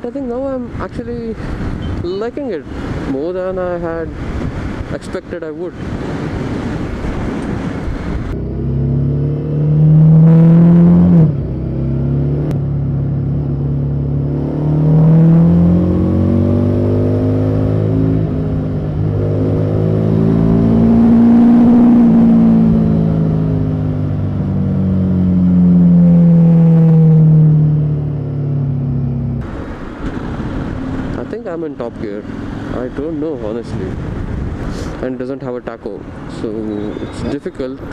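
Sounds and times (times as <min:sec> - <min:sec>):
motorcycle engine revving: 0:08.3 - 0:29.5, 0:30.4 - 0:34.3.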